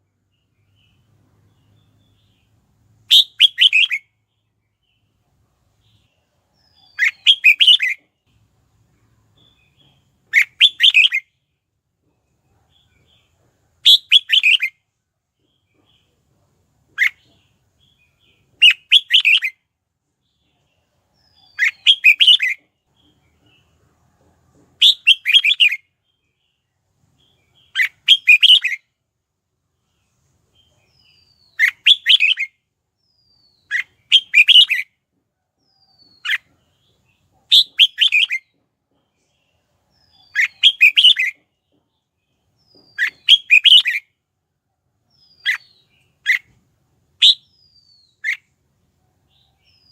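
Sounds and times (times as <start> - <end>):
bird singing chirpy phrases: 0.3 - 5.1, 5.8 - 8.0, 17.0 - 19.5, 20.3 - 23.2, 29.8 - 34.8, 39.3 - 41.5, 42.3 - 44.0, 45.1 - 46.6, 47.2 - 48.5.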